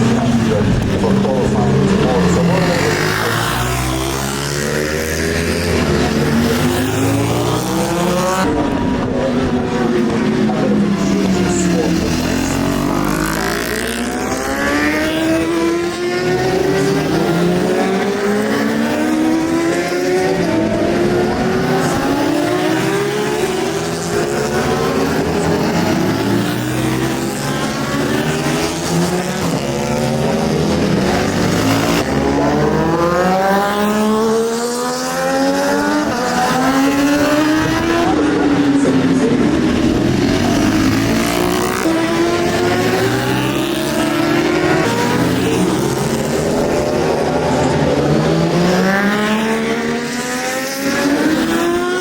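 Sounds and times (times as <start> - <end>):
superbike engines at full throttle: 0.0 - 52.0.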